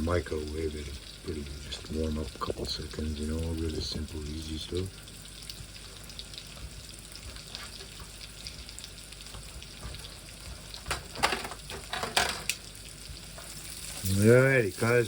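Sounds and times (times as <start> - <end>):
potatoes sizzling in a pan: 0.0 - 15.0
knocks and clatters: 9.4 - 12.5.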